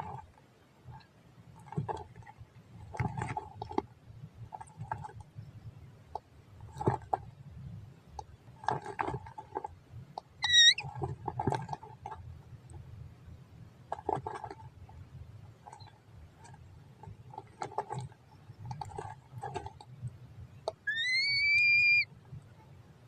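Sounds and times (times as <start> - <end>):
bird whistled note: 10.4 - 10.8, 20.9 - 22.1
birds chirping: 10.4 - 10.8, 20.9 - 22.0.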